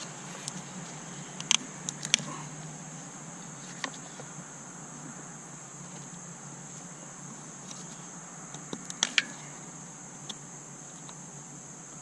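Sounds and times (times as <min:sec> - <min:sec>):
background hum and hiss: 0:00.0 - 0:12.0.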